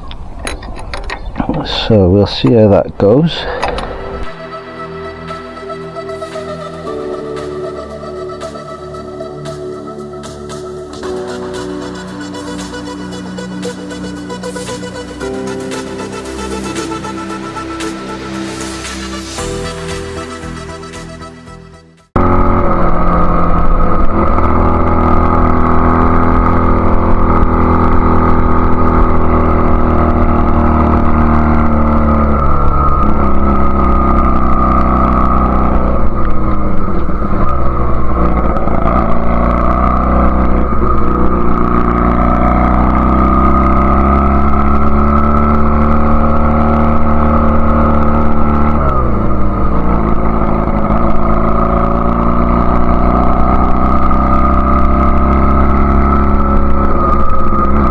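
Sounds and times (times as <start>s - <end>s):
motorcycle engine revving: 0.0s - 4.5s, 22.1s - 57.9s.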